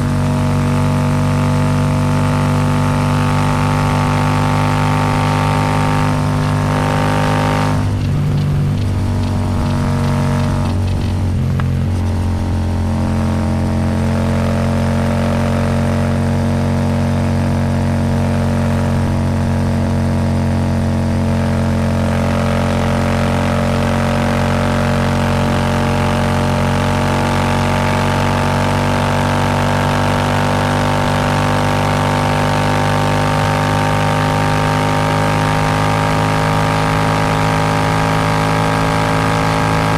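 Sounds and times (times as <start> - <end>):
motorcycle engine exhaust note: 0.0 - 39.9.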